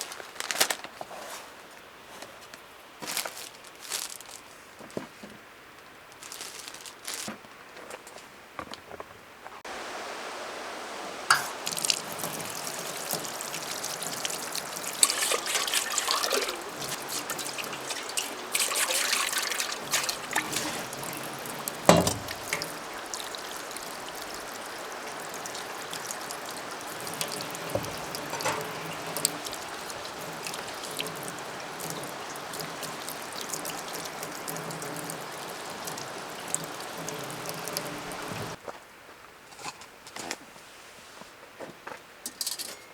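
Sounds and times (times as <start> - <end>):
water trickling and splashing: 9.6 - 38.6
steady hiss: 9.7 - 38.6.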